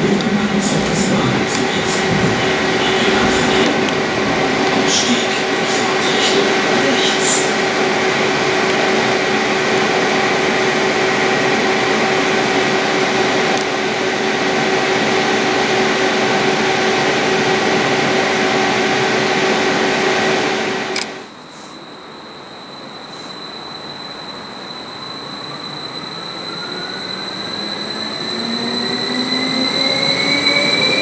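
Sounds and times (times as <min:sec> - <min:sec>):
station sound: 0:00.0 - 0:07.6
multi-tone traction hum: 0:00.0 - 0:10.4
train running noise: 0:00.0 - 0:21.8.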